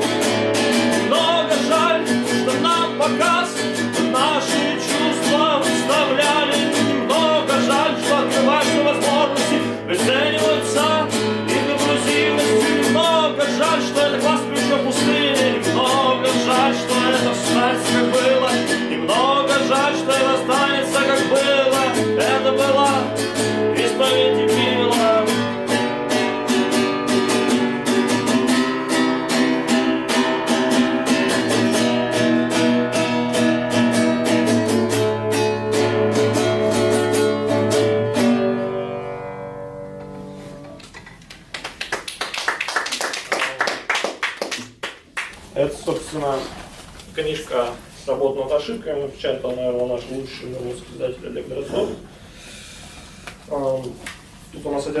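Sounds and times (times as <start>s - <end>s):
acoustic guitar strumming: 0.0s - 41.0s
person singing: 0.9s - 25.6s.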